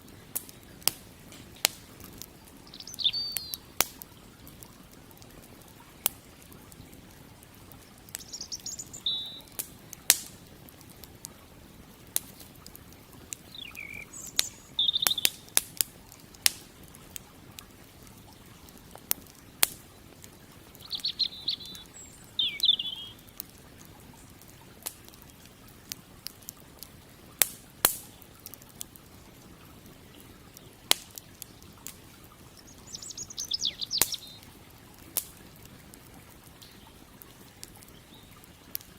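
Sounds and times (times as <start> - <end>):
campfire crackling and popping: 0.0 - 38.9
songbird chirping: 2.2 - 3.8, 7.9 - 9.6, 13.3 - 15.6, 18.3 - 23.4, 30.4 - 34.6.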